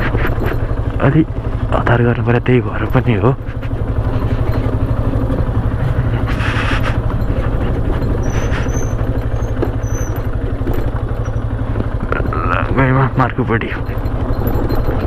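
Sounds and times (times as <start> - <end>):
motorcycle engine running: 0.0 - 15.0
short high squeaks: 3.4 - 11.6.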